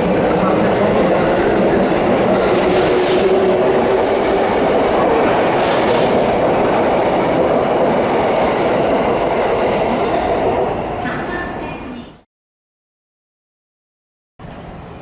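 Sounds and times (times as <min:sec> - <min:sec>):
train wheels rolling on rails: 0:00.0 - 0:11.7.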